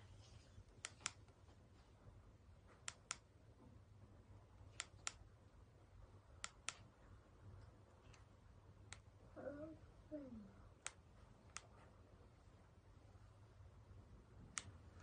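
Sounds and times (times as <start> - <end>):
faint low hum: 0.0 - 15.0
paired sharp clicks: 0.8 - 1.4, 2.7 - 3.3, 4.7 - 5.2, 6.4 - 6.9, 8.9 - 9.1, 10.8 - 11.7, 14.5 - 14.8.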